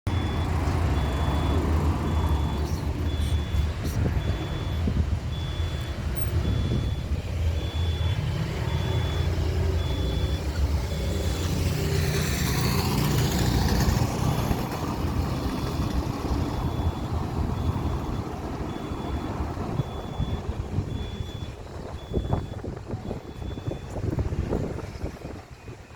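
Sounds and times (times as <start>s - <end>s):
high beeps: 0.1s - 11.6s, 16.3s - 24.0s.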